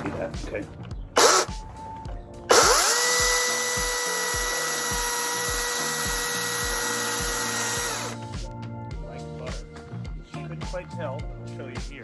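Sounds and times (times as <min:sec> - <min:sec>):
electric chainsaw cutting wood: 0:01.2 - 0:01.6, 0:02.5 - 0:08.2.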